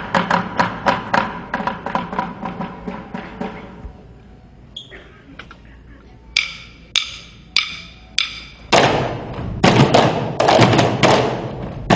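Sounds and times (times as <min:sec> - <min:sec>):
wood-block strikes: 0:06.3 - 0:09.0.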